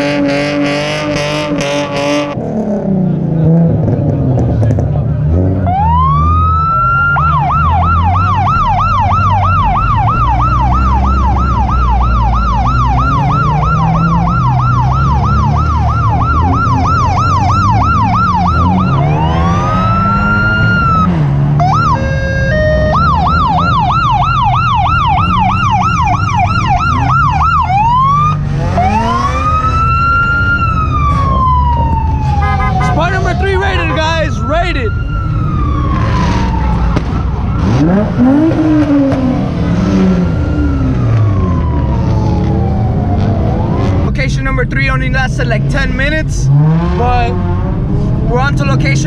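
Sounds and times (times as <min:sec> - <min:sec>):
car engines rumbling: 0:00.0 - 0:49.0
police siren: 0:05.6 - 0:44.2.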